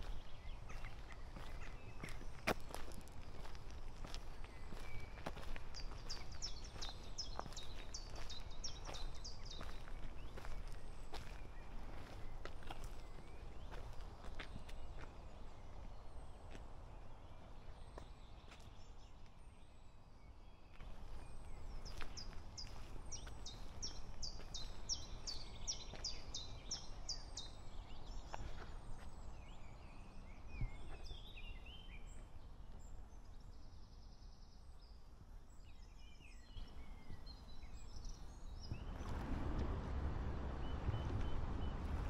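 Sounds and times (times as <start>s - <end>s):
songbirds calling: 0.0s - 42.0s.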